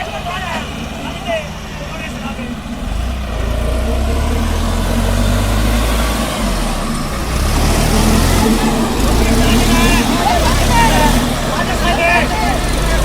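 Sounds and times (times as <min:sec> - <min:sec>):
diesel tractor engines under load: 0:00.0 - 0:13.0.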